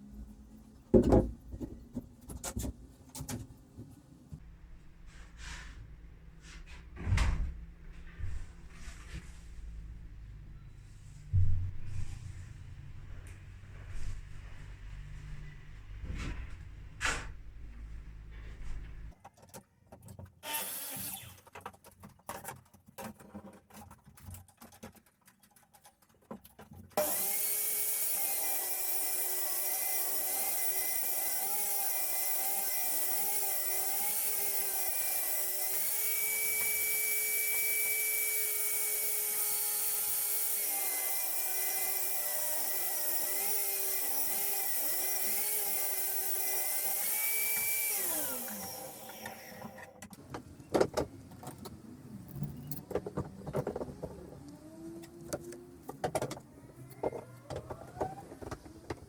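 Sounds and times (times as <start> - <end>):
power tool whining cutting wood: 20.4 - 21.4, 27.0 - 50.1.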